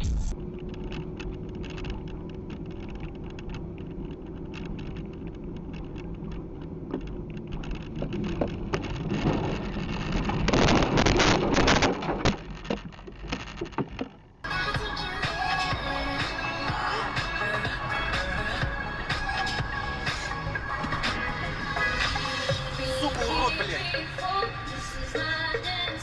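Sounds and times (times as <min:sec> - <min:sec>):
rush of noise: 0:00.0 - 0:00.4
car road rumble: 0:00.0 - 0:26.0.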